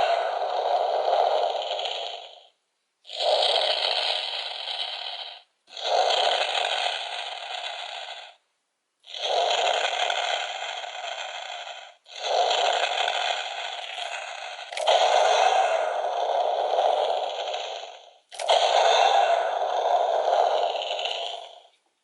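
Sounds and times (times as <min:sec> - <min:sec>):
harsh electronic toy effect: 0:00.0 - 0:02.5, 0:03.1 - 0:08.4, 0:09.1 - 0:21.8.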